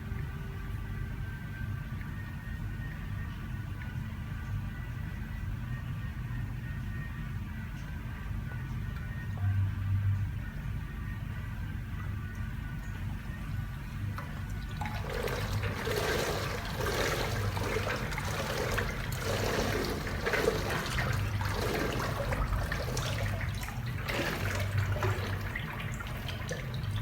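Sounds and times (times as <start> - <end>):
steady low hum: 0.0 - 27.0
water running and splashing: 14.0 - 27.0.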